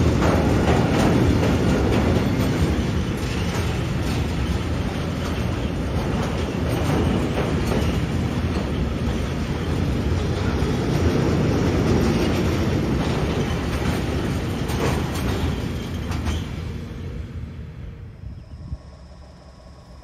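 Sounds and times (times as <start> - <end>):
sharp rail clacks: 0.0 - 16.7
train wheels rumbling on rails: 0.0 - 19.8.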